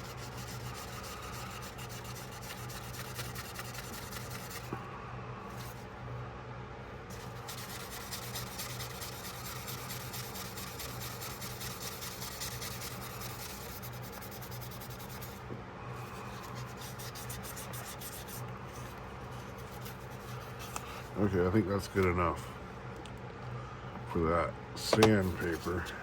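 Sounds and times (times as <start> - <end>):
sandpaper scratching steel: 0.0 - 4.7, 7.1 - 15.4, 16.2 - 18.4
steady low hum: 0.0 - 26.0.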